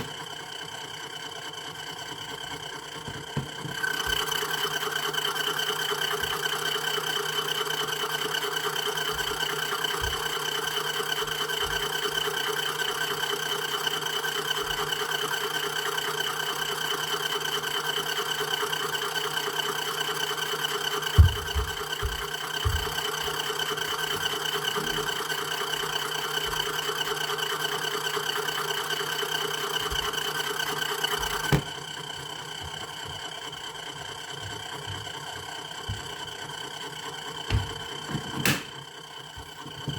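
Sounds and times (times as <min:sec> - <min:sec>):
washing machine spinning: 0:00.0 - 0:39.9
washing machine knocks: 0:21.2 - 0:23.2, 0:37.5 - 0:38.7.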